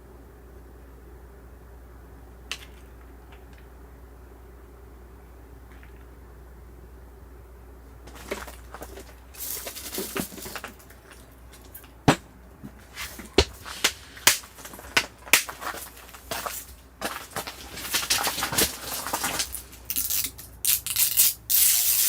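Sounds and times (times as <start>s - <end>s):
firewood crackling: 8.0s - 21.6s.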